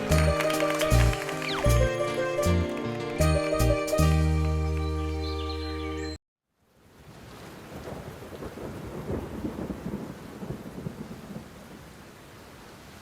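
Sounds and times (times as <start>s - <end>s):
steady rain: 0.0s - 2.2s, 6.6s - 13.0s
music: 0.0s - 6.2s
rumbling crackling thunder: 7.7s - 11.9s.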